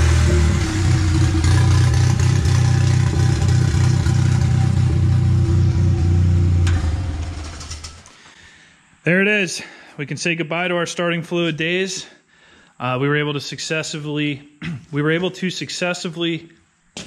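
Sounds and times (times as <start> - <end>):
engine running: 0.0 - 8.1.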